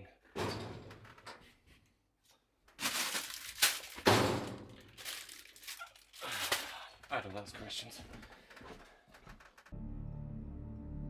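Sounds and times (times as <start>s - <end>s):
objects thudding and clattering: 0.4s - 1.5s, 2.7s - 6.8s.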